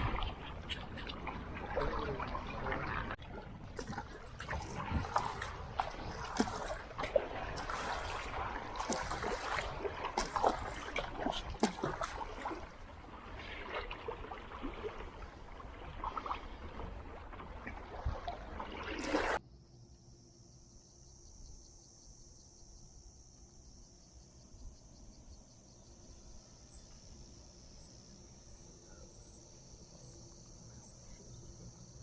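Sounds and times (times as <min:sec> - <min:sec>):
water splashing around kayak: 0:00.0 - 0:19.4
crickets chirring: 0:03.8 - 0:32.0.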